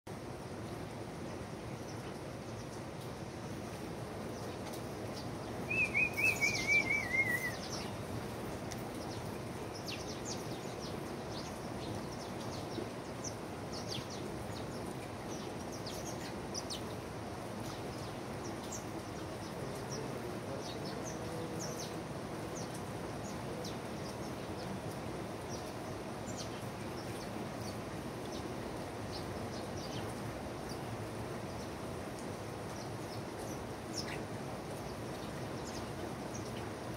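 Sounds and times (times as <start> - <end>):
background hiss: 0.1 - 36.9
bird trilling: 5.7 - 7.7
high bird chirps: 5.7 - 7.9.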